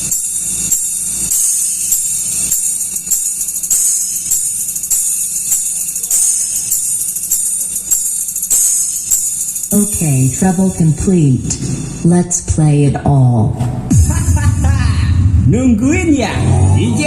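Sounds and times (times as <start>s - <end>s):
jingling tambourine-like percussion: 0.0s - 12.1s.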